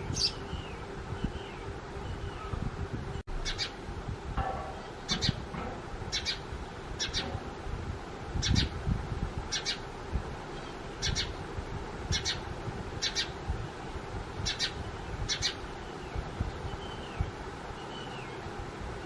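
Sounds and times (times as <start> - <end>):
sparrow chirping: 0.0 - 2.6, 3.2 - 3.8, 4.8 - 7.6, 8.4 - 8.8, 9.5 - 9.9, 10.5 - 11.4, 12.1 - 13.4, 14.4 - 18.4
low rumble: 2.8 - 9.5.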